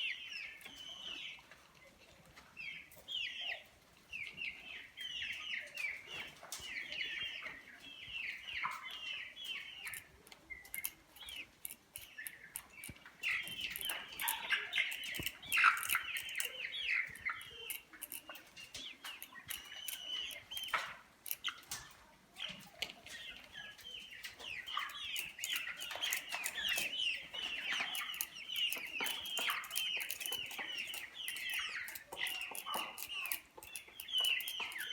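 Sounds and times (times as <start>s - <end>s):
chickens chirping: 0.0s - 34.9s
sharp clicks: 9.5s - 22.0s, 24.2s - 34.9s.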